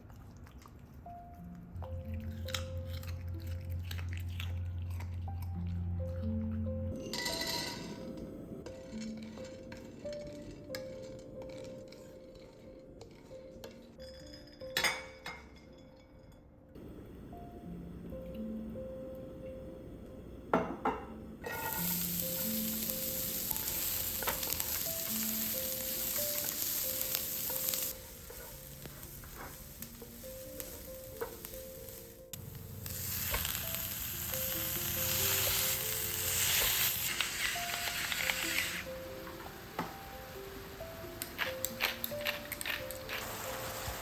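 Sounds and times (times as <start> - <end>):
soft background music: 0.0 - 44.0
food sizzling in a hot pan: 21.4 - 44.0.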